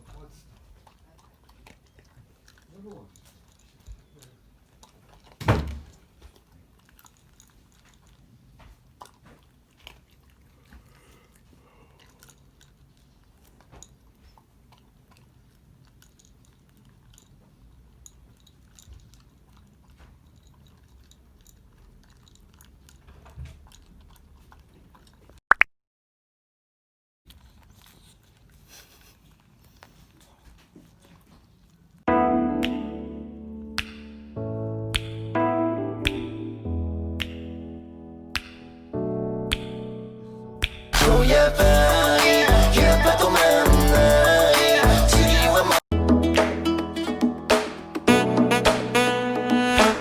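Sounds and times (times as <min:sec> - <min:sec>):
dog chewing food: 0:00.0 - 0:25.4, 0:27.3 - 0:32.1
sharp click: 0:39.5 - 0:39.9.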